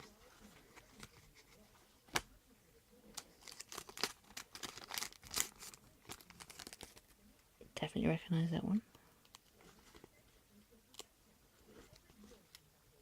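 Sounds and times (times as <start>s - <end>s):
wrapper crinkling and tearing: 3.2s - 7.1s.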